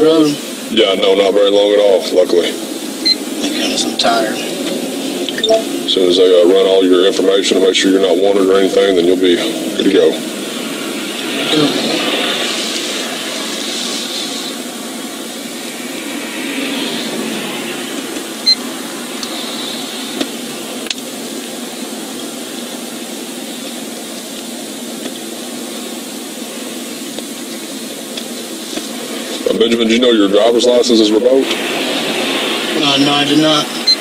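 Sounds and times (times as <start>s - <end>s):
car engine idling: 0.0s - 34.0s
ventilation fan: 0.0s - 34.0s.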